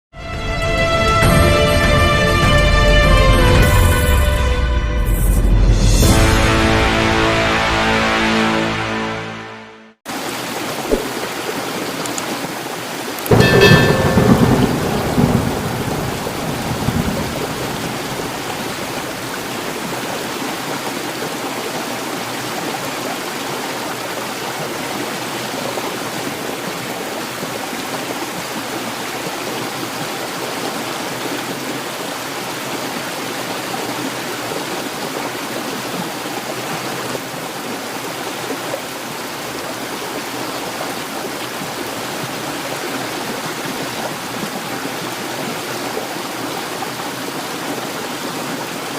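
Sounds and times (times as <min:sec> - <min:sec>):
heavy rain falling: 0:10.1 - 0:48.9
thunder rumbling: 0:13.3 - 0:19.6.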